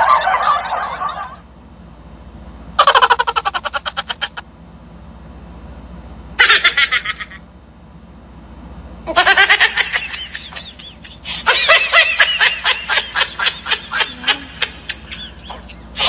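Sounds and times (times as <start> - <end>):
high-pitched giggling: 0.0 - 1.4, 2.8 - 4.4, 9.1 - 16.0.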